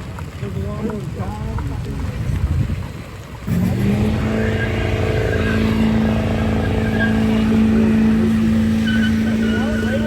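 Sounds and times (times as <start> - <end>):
truck engine revving: 3.5 - 10.0.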